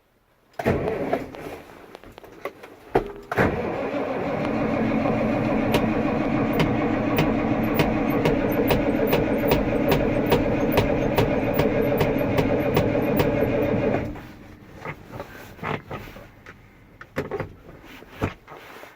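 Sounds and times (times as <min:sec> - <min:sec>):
diesel truck engine idling: 0:03.6 - 0:14.5
sharp engine tick: 0:06.5 - 0:13.5.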